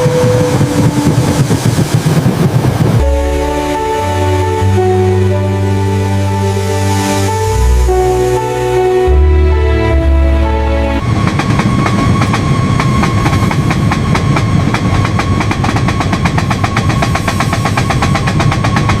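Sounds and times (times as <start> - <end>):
music: 0.0 - 2.2, 3.0 - 19.0
train clattering: 0.0 - 4.1, 10.9 - 19.0.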